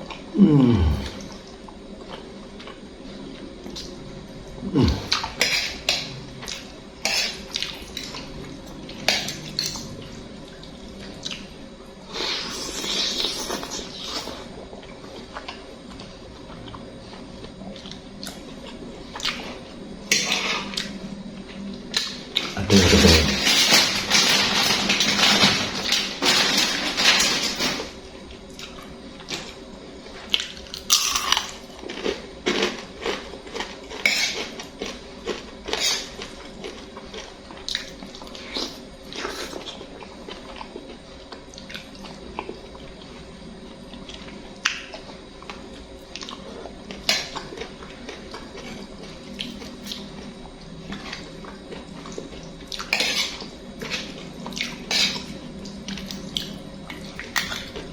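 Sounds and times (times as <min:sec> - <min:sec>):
eating noises: 0:04.6 - 0:08.5, 0:21.9 - 0:23.9
cutlery clinking and scraping a bowl: 0:05.3 - 0:06.1, 0:07.0 - 0:08.1, 0:34.0 - 0:34.6, 0:52.9 - 0:54.1, 0:54.9 - 0:55.4.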